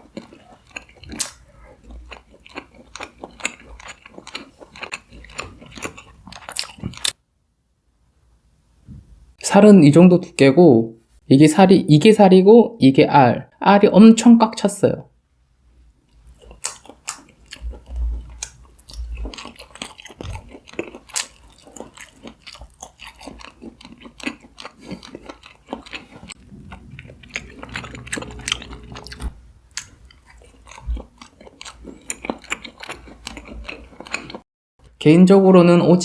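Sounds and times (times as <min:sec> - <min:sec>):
person chewing: 0:00.0 - 0:07.2, 0:16.1 - 0:34.4
low thumps: 0:26.3 - 0:29.7.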